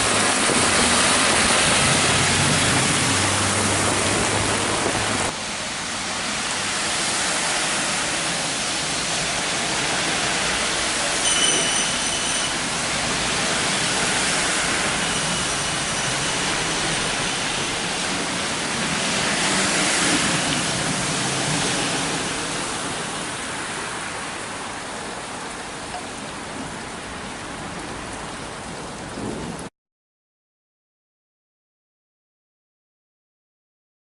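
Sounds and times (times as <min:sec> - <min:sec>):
heavy rain hissing: 0:00.0 - 0:29.6.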